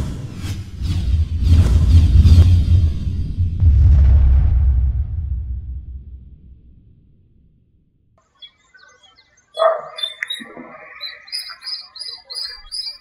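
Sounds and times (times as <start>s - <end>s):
low rumble: 0.0s - 8.2s
small birds chirping: 8.2s - 13.0s
harsh bird call: 8.3s - 13.0s.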